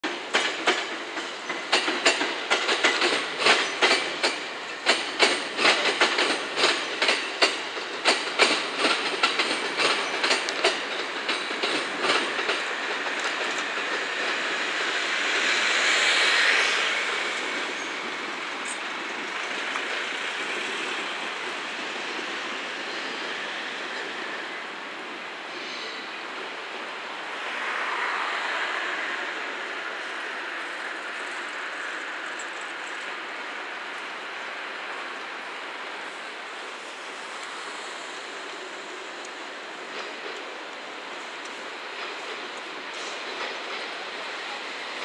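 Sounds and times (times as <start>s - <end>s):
train wheels clacking over rail joints: 0.0s - 24.4s, 36.8s - 45.0s
train wheels rolling on rail: 0.0s - 45.0s.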